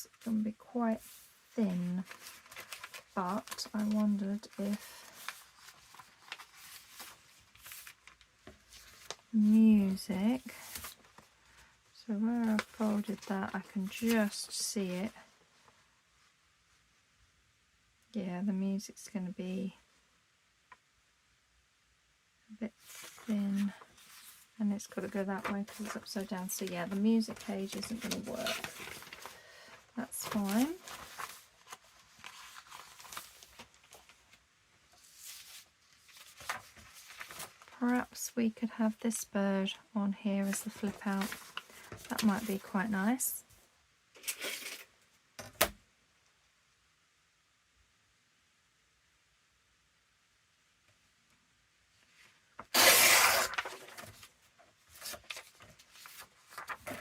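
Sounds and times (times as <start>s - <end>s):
paper rustling: 1.0s - 11.7s, 12.3s - 15.1s, 22.8s - 38.2s, 40.4s - 42.9s, 44.2s - 44.9s, 52.1s - 57.0s.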